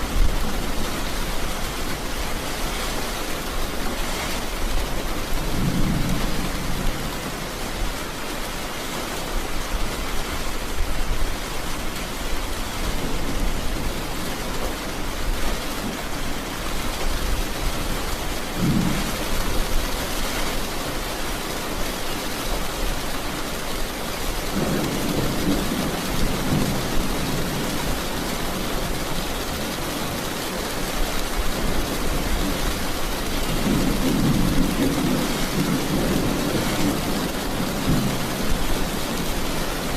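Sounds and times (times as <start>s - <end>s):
steady rain: 0.0s - 39.9s
thunder rumbles: 2.6s - 8.4s, 17.4s - 19.9s, 24.5s - 30.5s, 31.6s - 39.9s.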